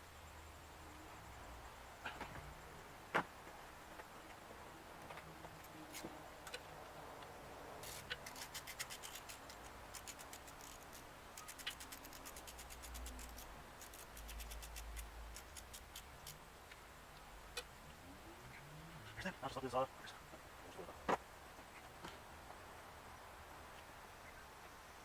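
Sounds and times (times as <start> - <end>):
ratchet wrench clicking: 7.8 - 16.4.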